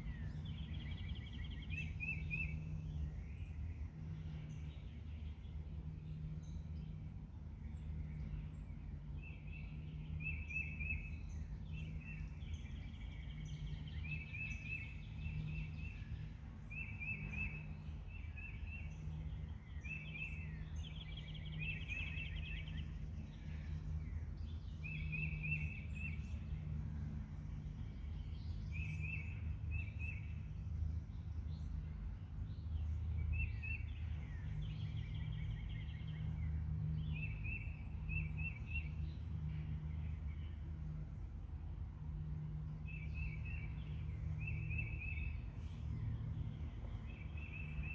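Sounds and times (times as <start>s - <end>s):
small birds chirping: 7.7s - 40.6s, 42.6s - 47.9s.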